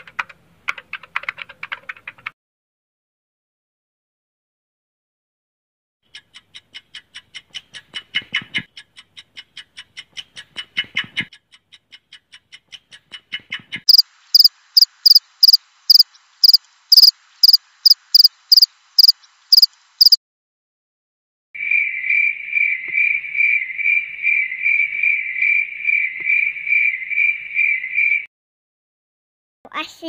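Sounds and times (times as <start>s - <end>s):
cricket chirping: 13.9s - 20.2s, 21.6s - 26.9s
high-pitched cricket chirp: 13.9s - 20.2s, 21.6s - 26.0s.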